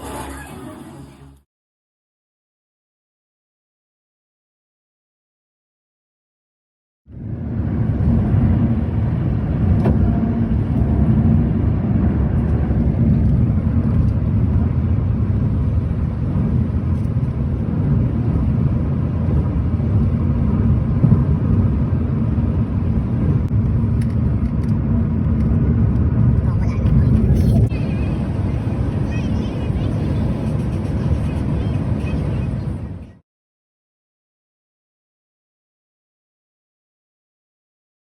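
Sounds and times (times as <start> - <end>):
car engine and road noise: 0.0 - 1.4, 7.1 - 33.2.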